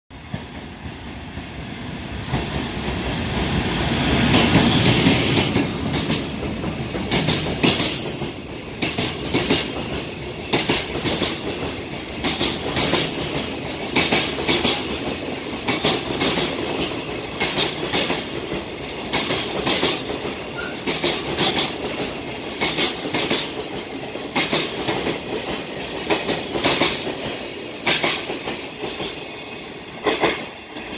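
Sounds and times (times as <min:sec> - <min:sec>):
electric locomotive passing: 0:00.2 - 0:30.9.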